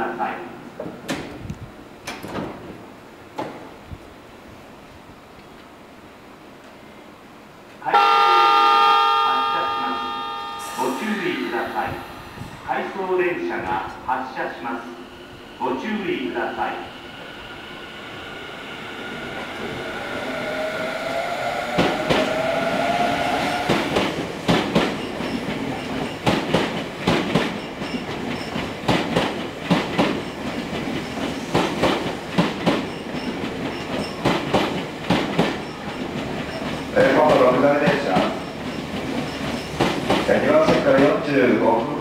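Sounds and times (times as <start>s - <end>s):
train wheels clacking over rail joints: 23.7s - 42.0s.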